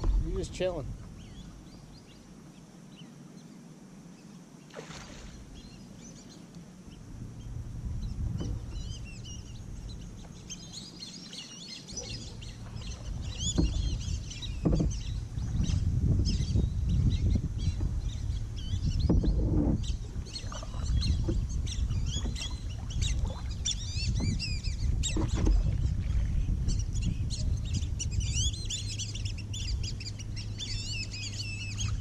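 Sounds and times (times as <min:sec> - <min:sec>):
flock of birds chirping: 0:00.1 - 0:32.0
kayak paddle splash: 0:04.7 - 0:05.6
low rumble: 0:06.9 - 0:11.2, 0:11.9 - 0:32.0.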